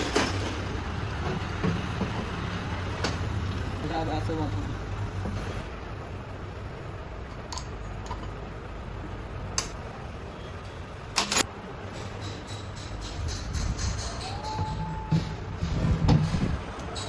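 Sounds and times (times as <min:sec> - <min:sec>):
metal parts clicking and clinking: 0:11.2 - 0:14.4.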